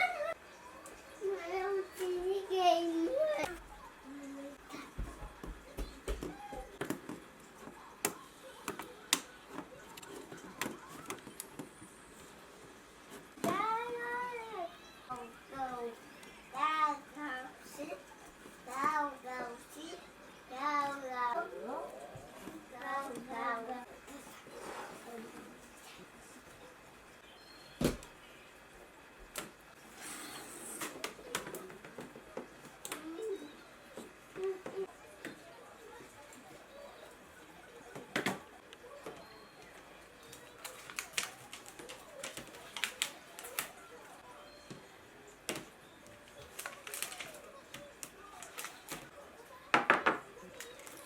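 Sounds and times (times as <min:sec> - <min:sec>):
faint voices: 0:28.1 - 0:51.0.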